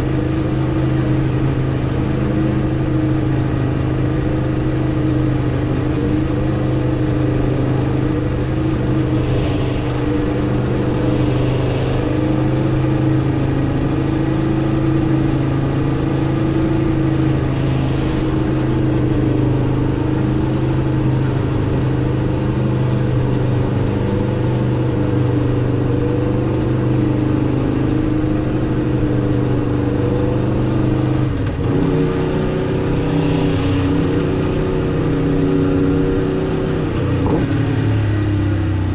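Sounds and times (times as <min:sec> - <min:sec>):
motorcycle engine while riding: 0:00.0 - 0:38.9.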